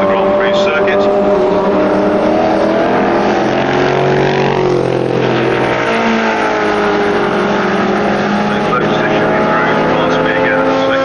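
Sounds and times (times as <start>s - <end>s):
racing car engines: 0.0s - 11.0s.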